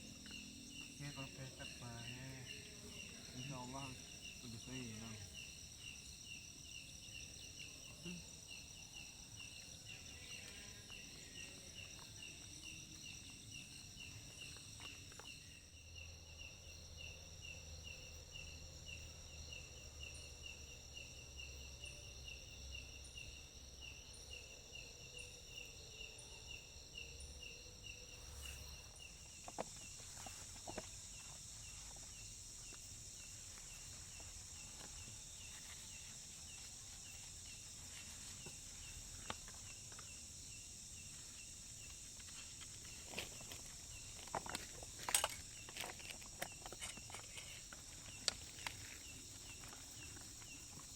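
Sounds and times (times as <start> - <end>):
high-pitched insect drones: 0.0 - 50.9
insect chirping: 0.0 - 50.9.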